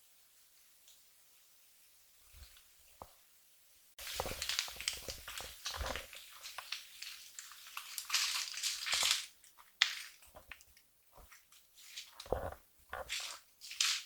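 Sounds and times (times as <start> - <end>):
rustling and crinkling: 4.0 - 14.0.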